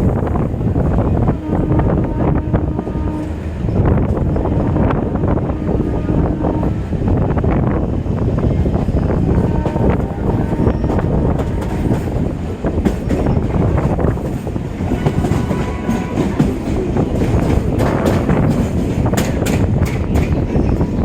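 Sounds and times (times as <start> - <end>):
train rumbling: 0.0 - 21.0
wheels clicking over rail joints: 10.8 - 21.0.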